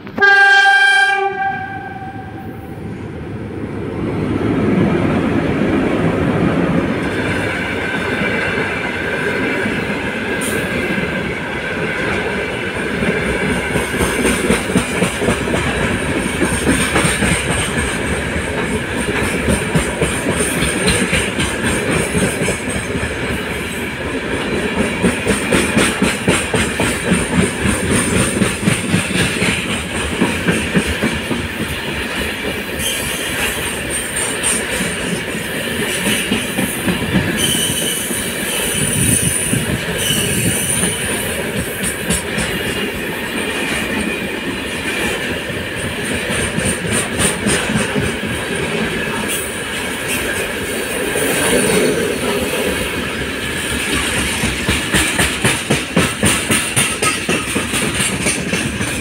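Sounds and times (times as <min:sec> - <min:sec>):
freight train rumbling past: 0:00.0 - 0:59.0
locomotive horn blast: 0:00.1 - 0:02.7.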